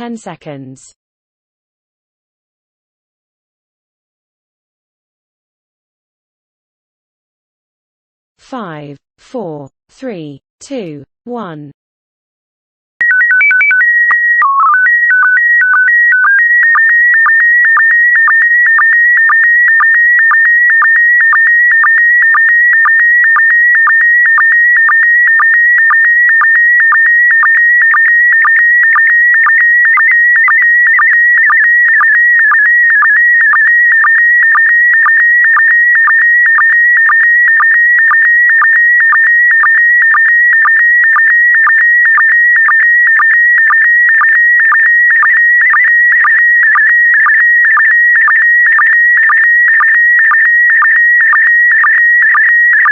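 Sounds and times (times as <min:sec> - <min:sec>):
header tones hopping pitches: 0:13.0 - 0:37.2, 0:52.3 - 0:52.9.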